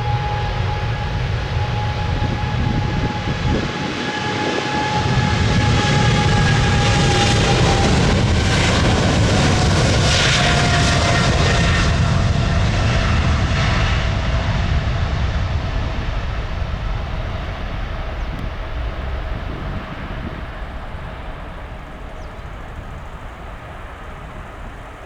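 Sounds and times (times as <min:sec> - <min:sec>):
jet engines roaring at takeoff: 0:00.0 - 0:25.0.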